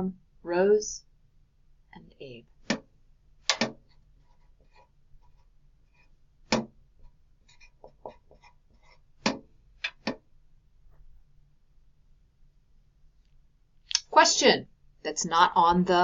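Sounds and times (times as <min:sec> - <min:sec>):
pen tapping and clicking: 0:03.5 - 0:03.9.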